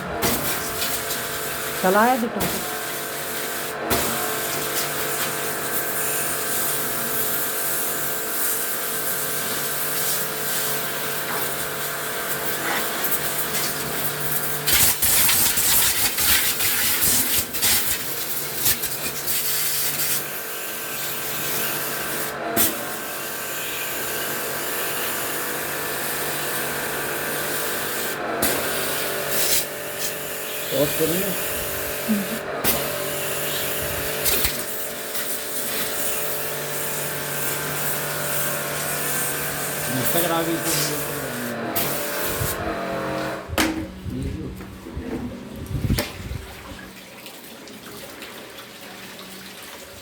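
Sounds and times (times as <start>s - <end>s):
hiss of air or spray: 28.8s - 30.2s, 40.6s - 41.1s
electric motor hum: 29.0s - 44.5s
sharp knocks: 43.5s - 44.0s.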